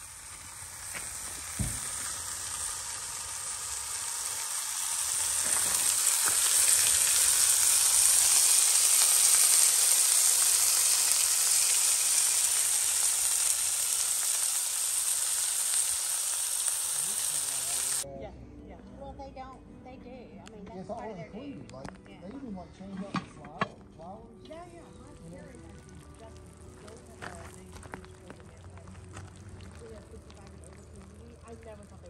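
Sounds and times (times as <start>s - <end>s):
chicken sizzling in a pot: 0.0s - 18.1s, 25.2s - 32.0s.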